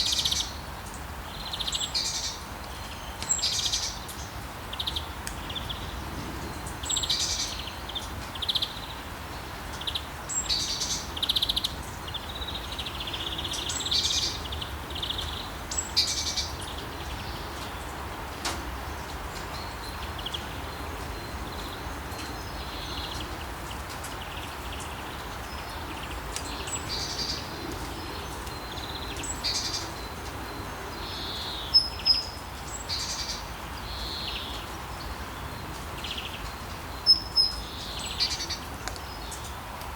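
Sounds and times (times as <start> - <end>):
rain hiss: 0.0 - 39.9
songbirds chirping: 0.0 - 39.9.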